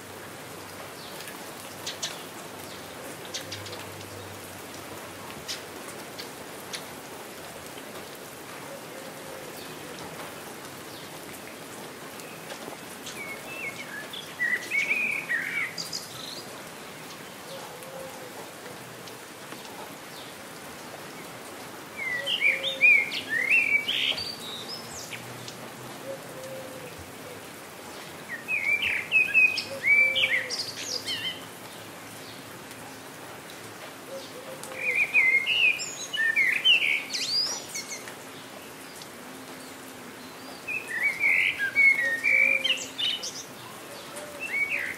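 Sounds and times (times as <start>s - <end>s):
light rain: 0.0s - 44.9s
songbird chirping: 10.7s - 18.1s, 22.0s - 32.8s, 34.0s - 44.9s.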